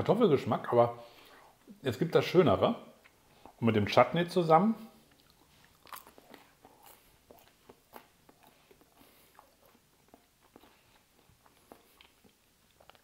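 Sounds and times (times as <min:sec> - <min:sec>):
person chewing crunchy food: 0:05.0 - 0:13.0.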